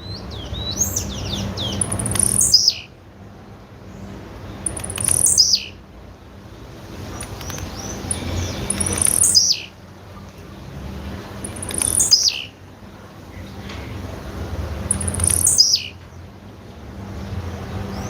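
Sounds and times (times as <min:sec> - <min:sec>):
bird call with sharp high notes: 0:04.7 - 0:05.8, 0:11.5 - 0:12.5, 0:14.9 - 0:16.0.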